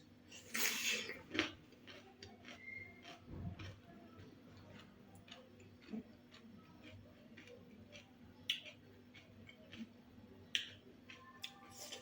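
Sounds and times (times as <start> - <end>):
soft chewing clicks: 1.1 - 12.0.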